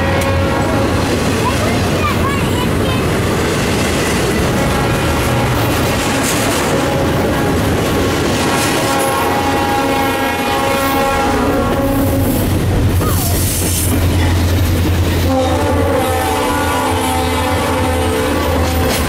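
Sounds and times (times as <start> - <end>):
locomotive horn: 0.0 - 1.2, 4.4 - 7.7, 8.5 - 12.6, 15.0 - 19.0
freight train wheels clacking: 0.0 - 19.0.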